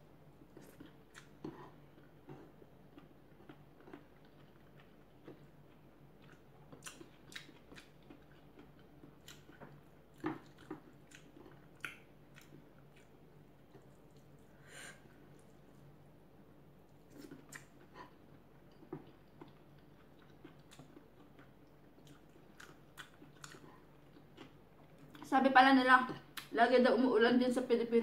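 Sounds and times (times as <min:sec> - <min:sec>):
person chewing: 0:00.4 - 0:15.9, 0:16.9 - 0:25.3.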